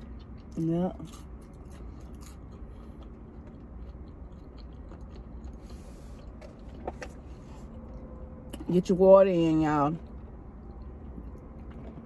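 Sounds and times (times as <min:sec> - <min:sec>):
chewing food: 0:00.0 - 0:08.6, 0:09.9 - 0:12.0
low steady hum: 0:00.0 - 0:12.0.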